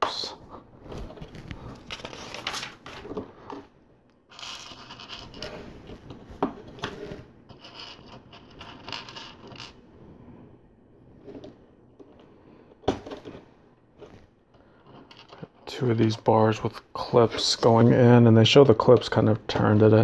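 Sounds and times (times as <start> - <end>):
plastic bricks scraping and rattling: 4.3 - 9.8, 11.2 - 16.2.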